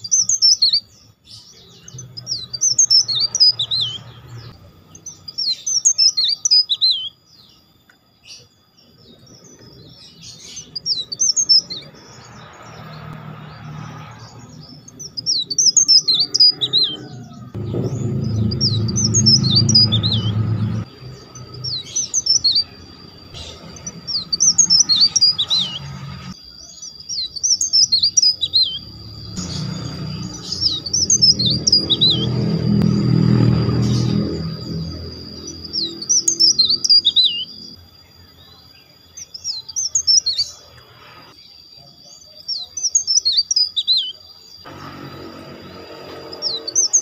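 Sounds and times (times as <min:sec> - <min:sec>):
bird singing whistled notes: 0:00.0 - 0:40.7, 0:41.4 - 0:45.2
loud low hum: 0:17.1 - 0:26.4, 0:28.8 - 0:36.7, 0:44.7 - 0:47.0.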